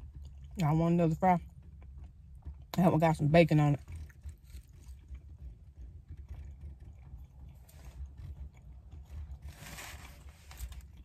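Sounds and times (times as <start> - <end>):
low rumble inside a car: 0.0 - 11.0
person chewing food: 3.8 - 11.0.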